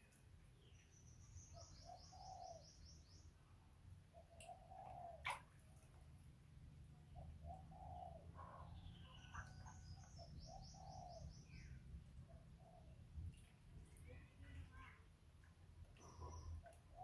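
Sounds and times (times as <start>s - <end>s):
small bird chirping: 0.6s - 3.4s, 7.1s - 13.5s
dove cooing: 4.2s - 5.4s, 7.4s - 8.4s.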